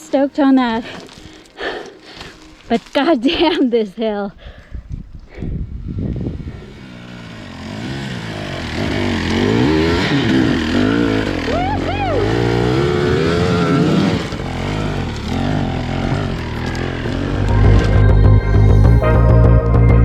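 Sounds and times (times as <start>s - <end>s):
dirt bike engine revving: 6.1s - 18.9s.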